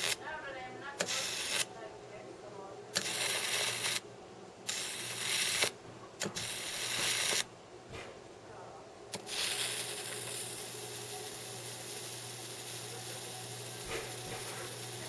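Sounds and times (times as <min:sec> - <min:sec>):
electric arc hissing: 0:00.0 - 0:00.2, 0:01.0 - 0:01.8, 0:02.9 - 0:04.0, 0:04.6 - 0:07.5, 0:09.1 - 0:15.0
electric arc snapping: 0:00.0 - 0:00.2, 0:01.0 - 0:01.7, 0:02.9 - 0:04.0, 0:04.7 - 0:07.5, 0:09.1 - 0:15.0.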